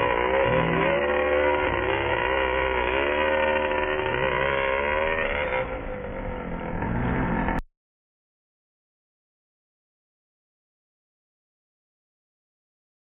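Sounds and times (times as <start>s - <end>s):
small nitro engine revving: 0.0s - 7.6s.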